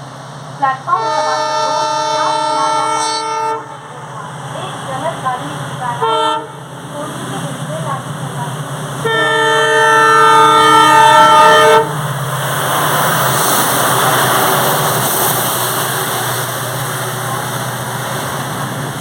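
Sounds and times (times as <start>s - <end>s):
train wagons rolling on track: 0.0s - 19.0s
train horn chord: 0.9s - 3.8s, 6.0s - 6.6s, 9.0s - 12.0s.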